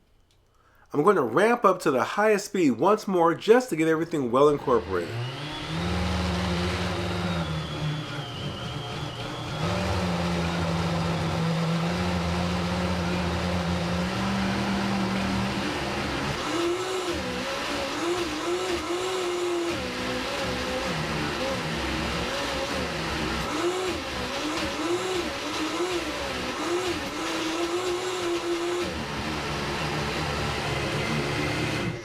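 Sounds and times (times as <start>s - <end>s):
blender motor running: 4.6s - 32.0s.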